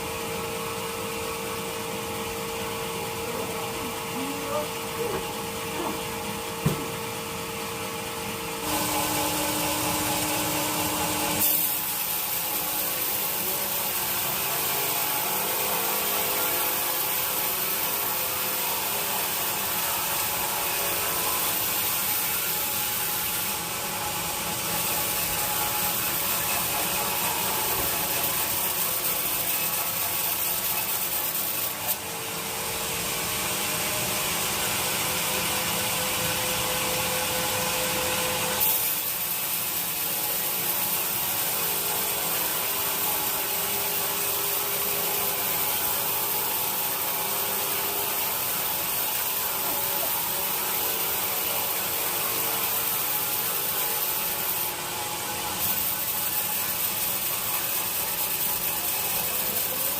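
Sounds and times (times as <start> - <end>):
sawmill saw cutting log: 2.9 - 59.9.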